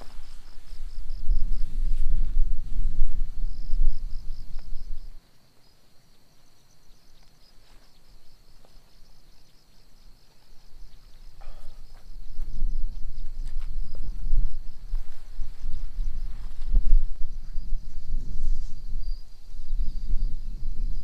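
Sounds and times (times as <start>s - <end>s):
wind gusting over microphone: 0.0s - 5.2s, 11.4s - 21.0s
insects chirping: 0.0s - 21.0s.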